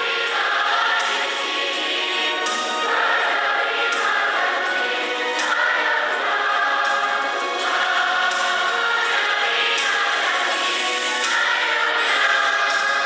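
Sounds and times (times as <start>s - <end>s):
congregation singing a hymn: 0.0s - 13.0s.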